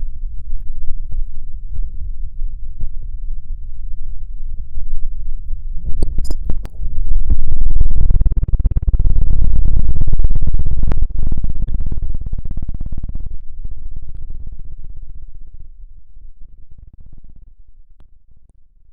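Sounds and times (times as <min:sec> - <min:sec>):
deep fluttering rumble: 0:00.0 - 0:18.9.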